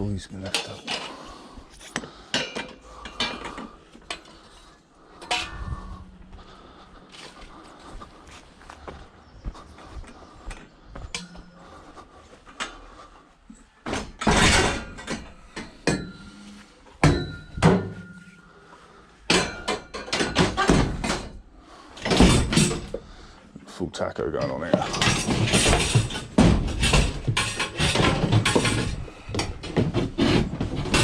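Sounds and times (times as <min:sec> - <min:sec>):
scrap junk clattering into van: 0:13.9 - 0:16.3, 0:22.0 - 0:23.0, 0:24.8 - 0:31.0.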